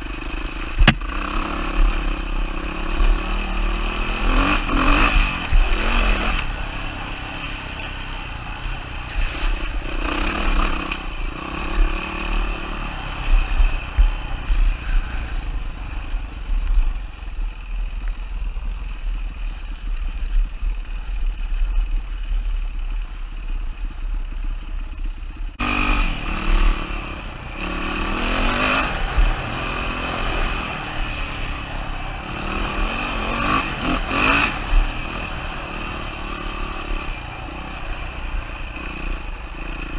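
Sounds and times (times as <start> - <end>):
dirt bike engine revving: 0.0 - 15.4, 25.6 - 39.9.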